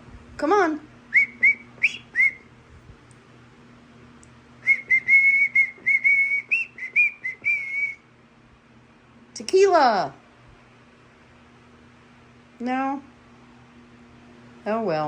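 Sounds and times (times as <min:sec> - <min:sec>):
person whistling: 0:01.2 - 0:02.4, 0:04.6 - 0:08.0.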